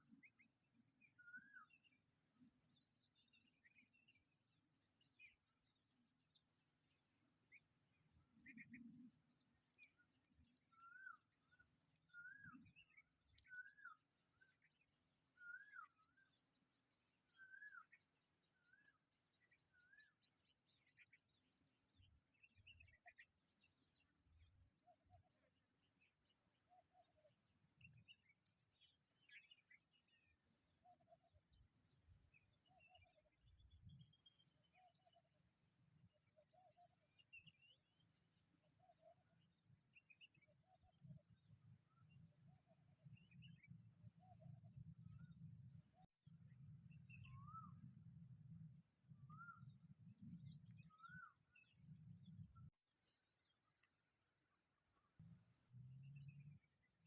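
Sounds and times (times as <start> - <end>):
bird chirps: 0.0 - 25.3, 26.7 - 35.2, 35.9 - 52.7
soft low bird call: 10.7 - 14.0, 49.3 - 49.7, 50.8 - 51.3.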